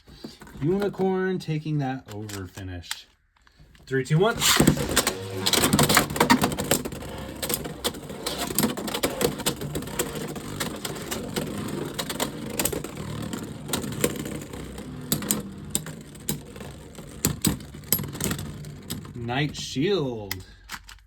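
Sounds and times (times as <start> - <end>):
spinning tops whirring: 4.2 - 19.6.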